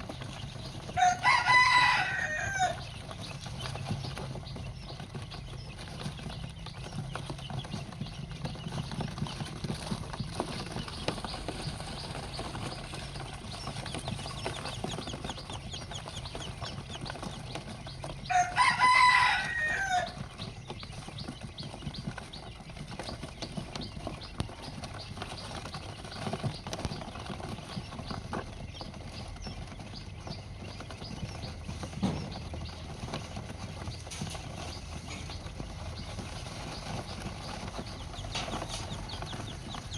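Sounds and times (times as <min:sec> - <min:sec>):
baby birds cheeping: 0:00.0 - 0:39.9
rooster crowing: 0:00.7 - 0:03.1, 0:18.1 - 0:20.5.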